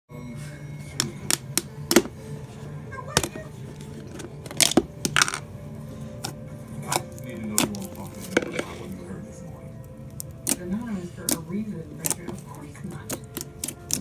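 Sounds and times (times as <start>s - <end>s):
slime squishing with clicks and pops: 6.2s - 8.6s, 9.8s - 14.0s.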